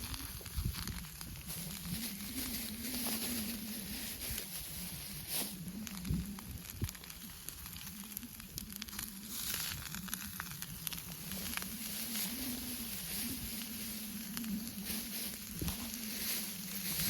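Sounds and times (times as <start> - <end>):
campfire crackling and popping: 0.0 - 17.0
low wavering hum: 0.0 - 17.0
food sizzling in a frying pan: 5.3 - 14.0.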